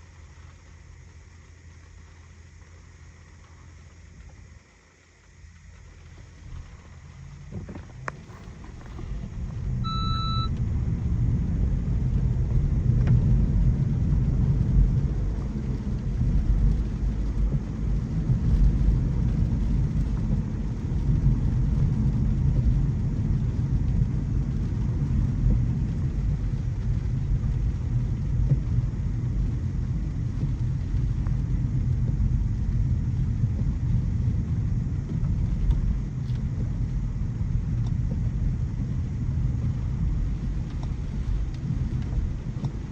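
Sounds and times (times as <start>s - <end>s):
road and tyre rumble: 0.0s - 42.9s
short electronic chime: 9.8s - 10.5s.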